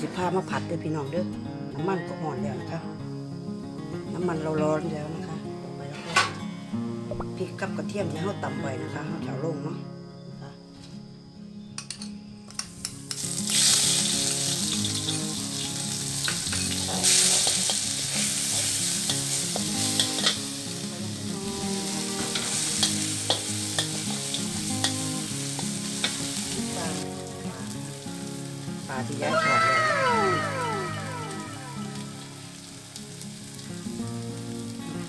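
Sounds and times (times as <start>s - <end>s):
paste sizzling in hot oil: 12.6s - 35.0s.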